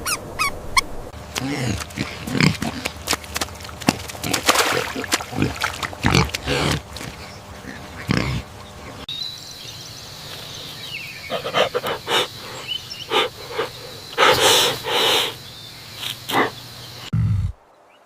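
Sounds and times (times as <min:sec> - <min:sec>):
background hiss: 0:00.0 - 0:18.0
animal breathy puffs: 0:01.4 - 0:04.4, 0:11.3 - 0:15.4.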